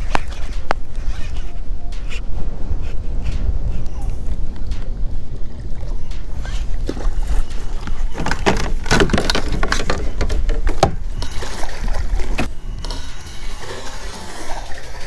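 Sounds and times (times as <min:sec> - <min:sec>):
wind buffeting microphone: 0:00.0 - 0:15.0
knocks and clatters on kayak: 0:03.2 - 0:13.1.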